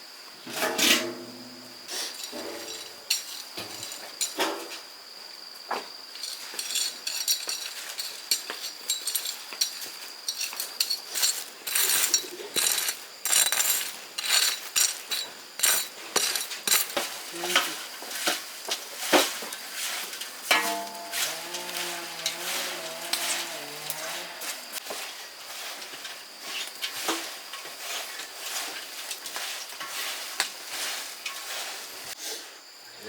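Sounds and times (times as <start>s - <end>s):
utensils clinking against dishes: 1.9s - 4.6s, 6.2s - 18.4s, 19.2s - 24.8s.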